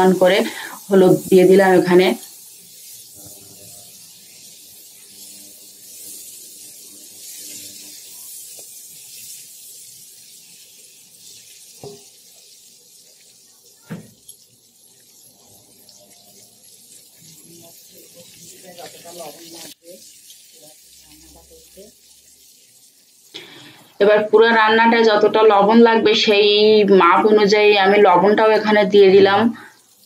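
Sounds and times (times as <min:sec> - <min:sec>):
shrimp sizzling in hot oil: 0:00.0 - 0:30.0.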